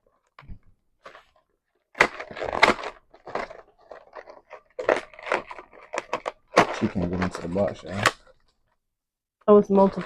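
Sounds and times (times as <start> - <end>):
wrapper crackling and tearing: 1.0 - 8.3.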